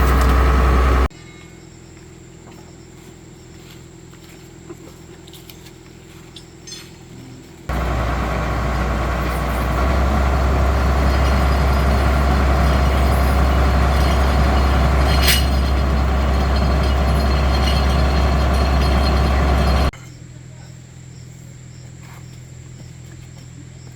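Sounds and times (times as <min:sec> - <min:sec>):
heavy vehicle engine humming: 0:00.0 - 0:01.1, 0:07.7 - 0:20.0.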